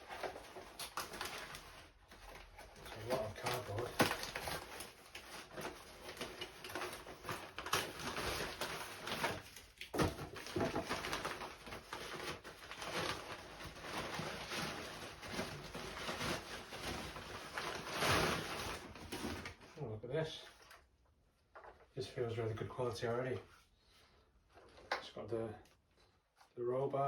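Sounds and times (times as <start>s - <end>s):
cardboard crackling and rustling: 0.0s - 19.8s.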